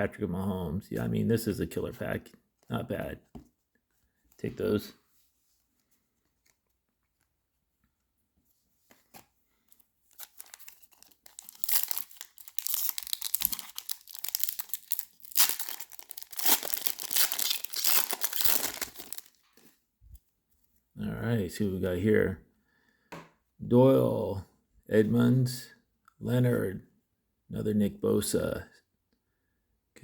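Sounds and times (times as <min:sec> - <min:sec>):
wrapper crinkling: 0:10.1 - 0:19.4.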